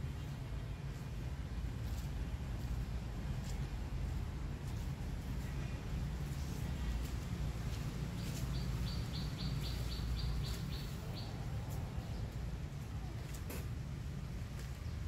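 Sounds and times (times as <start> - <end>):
bird chirping: 8.2 - 11.4.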